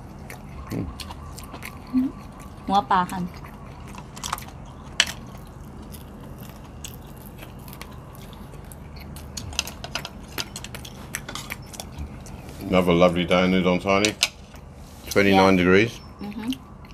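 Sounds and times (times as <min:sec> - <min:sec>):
wet chewing mouth clicks: 0:00.0 - 0:12.6, 0:16.0 - 0:16.9.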